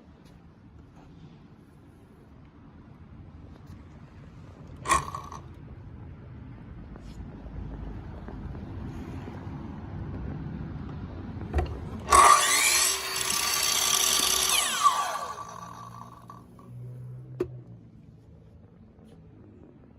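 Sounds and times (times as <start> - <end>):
miter saw running and whining down: 12.0 - 16.4.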